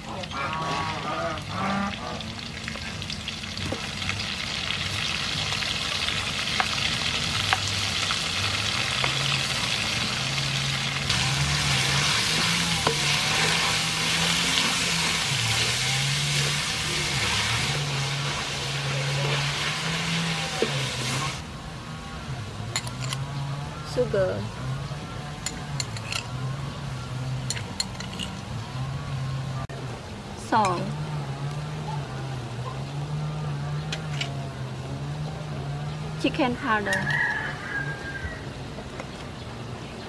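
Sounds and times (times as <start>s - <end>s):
meat sizzling in a wok: 2.3s - 21.4s.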